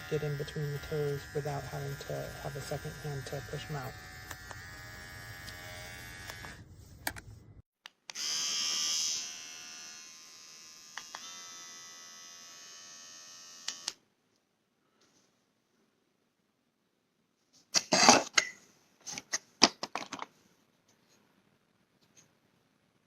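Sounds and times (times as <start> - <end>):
electric hair trimmer buzzing: 0.0 - 6.6, 8.1 - 14.0.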